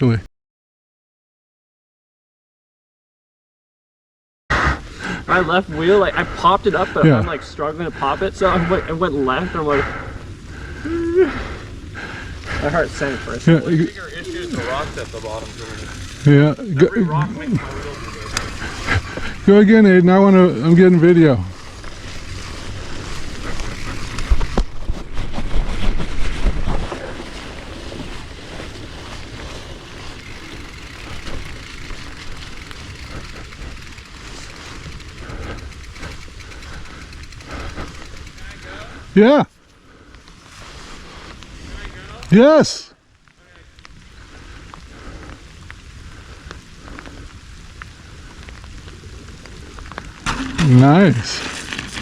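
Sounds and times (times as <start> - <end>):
wind rumbling on microphone: 7.8 - 39.2, 43.2 - 52.0
light rain falling: 40.0 - 52.0.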